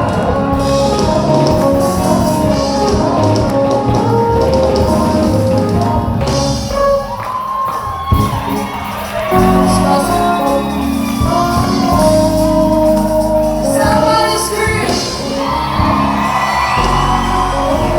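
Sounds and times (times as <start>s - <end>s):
band playing gospel music: 0.0s - 17.9s
woman singing: 9.3s - 17.9s.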